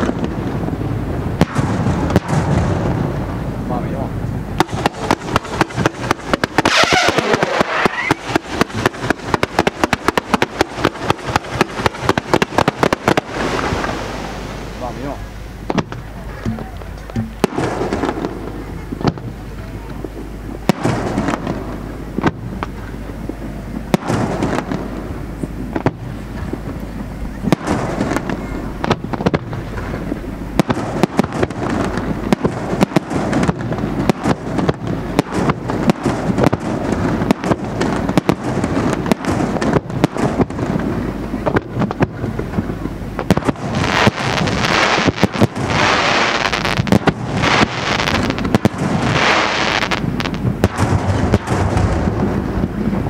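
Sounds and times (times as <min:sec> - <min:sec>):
loud pulsing hiss: 0:00.0 - 0:53.0
firework shells bursting: 0:04.6 - 0:19.4, 0:27.4 - 0:52.4.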